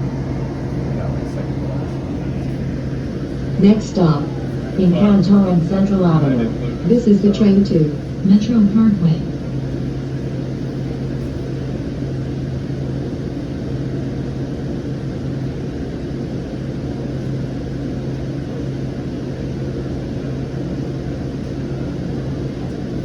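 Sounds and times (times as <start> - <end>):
light rail car running: 0.0 - 9.9
constant low hum: 0.0 - 23.0.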